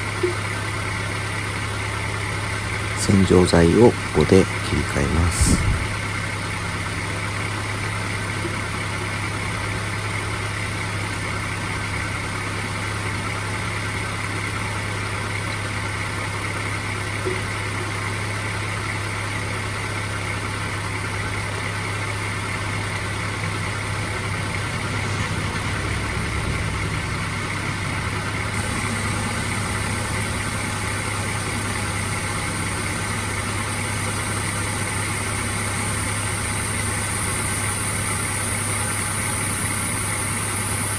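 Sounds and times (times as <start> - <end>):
car engine idling: 0.0 - 40.9
steady high hiss: 24.6 - 40.9.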